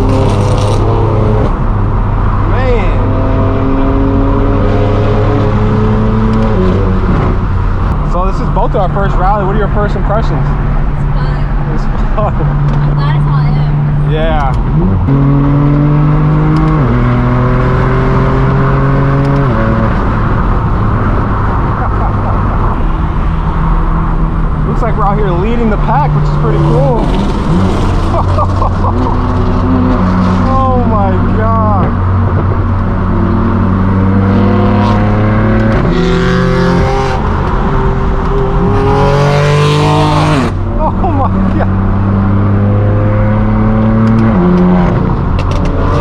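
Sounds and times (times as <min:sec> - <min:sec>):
car engine accelerating hard: 0:00.0 - 0:46.0
gear upshifts: 0:11.2 - 0:46.0.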